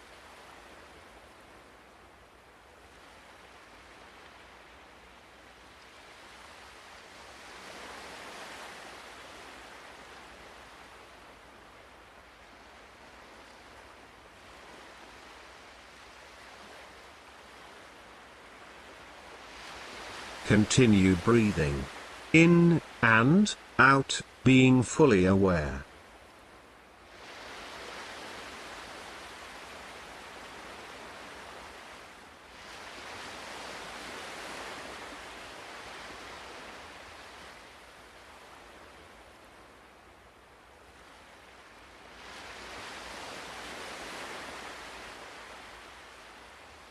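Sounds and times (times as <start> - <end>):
ocean waves washing: 3.0 - 26.4, 27.0 - 39.7.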